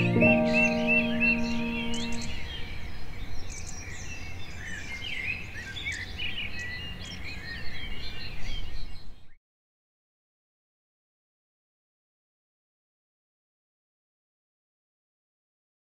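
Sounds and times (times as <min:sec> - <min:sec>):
held music chord: 0:00.0 - 0:02.6
birds chirping and twittering: 0:00.0 - 0:09.4.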